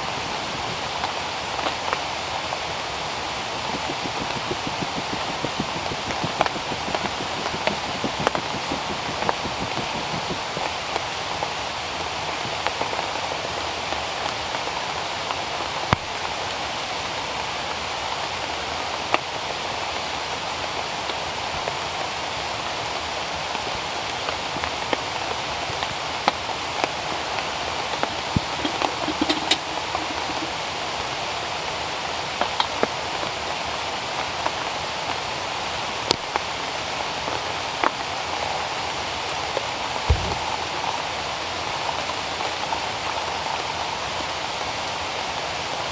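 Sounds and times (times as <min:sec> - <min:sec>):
rain on foliage: 0:00.0 - 0:45.9
drops tapping close by: 0:03.5 - 0:11.0, 0:28.1 - 0:30.6.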